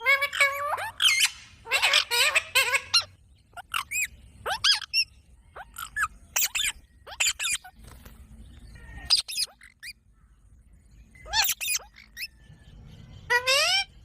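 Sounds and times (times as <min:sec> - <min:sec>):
parrot squawking: 0:00.0 - 0:07.7, 0:09.0 - 0:10.0, 0:11.2 - 0:12.3, 0:13.3 - 0:14.0.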